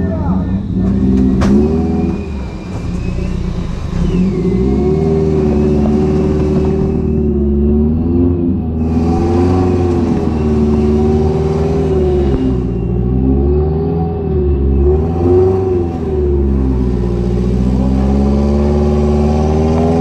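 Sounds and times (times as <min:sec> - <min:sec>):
off-road engine revving: 0:00.0 - 0:20.0.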